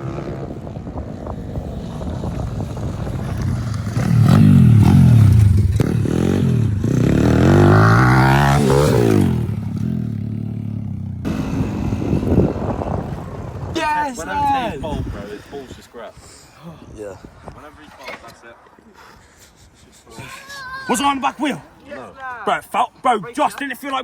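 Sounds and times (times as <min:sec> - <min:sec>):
motorcycle engine revving: 0:00.0 - 0:13.7.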